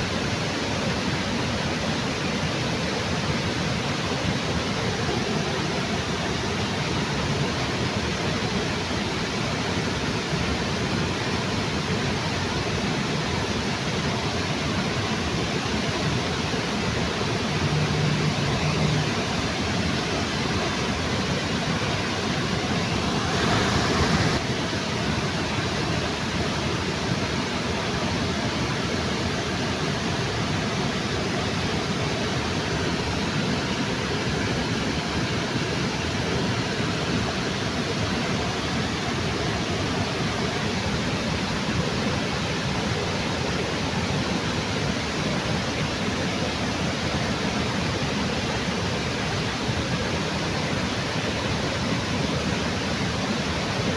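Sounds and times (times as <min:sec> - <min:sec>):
waterfall rushing: 0:14.3 - 0:49.7.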